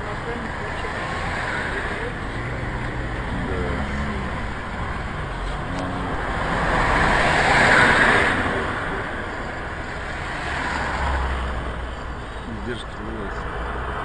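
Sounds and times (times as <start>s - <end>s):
vehicle passing: 0.0s - 14.0s.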